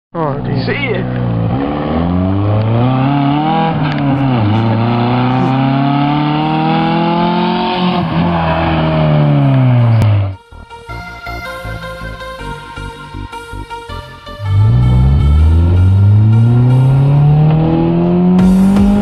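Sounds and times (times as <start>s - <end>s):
car engine accelerating hard: 0.3s - 10.4s, 14.4s - 19.0s
music: 10.1s - 19.0s.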